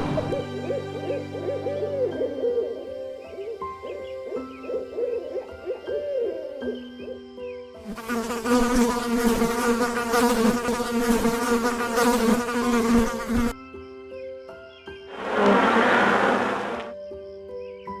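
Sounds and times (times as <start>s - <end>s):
soft background music: 0.0s - 15.2s, 16.9s - 18.0s
insect buzzing: 7.8s - 13.6s, 15.1s - 17.0s
loud rushing noise: 15.1s - 16.9s.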